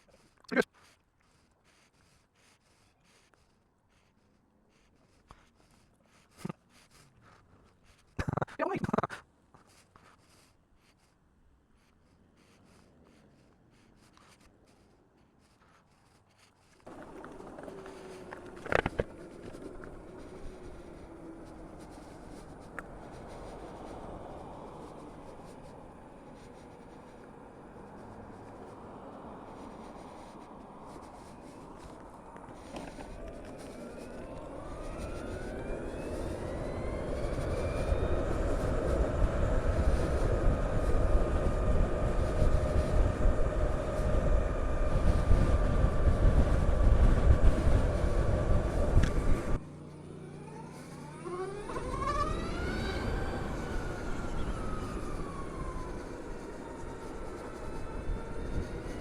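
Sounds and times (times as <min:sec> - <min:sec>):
electric motorcycle motor whine: 0:16.8 - 0:59.0
wind noise: 0:16.9 - 0:49.6, 0:51.6 - 0:59.0.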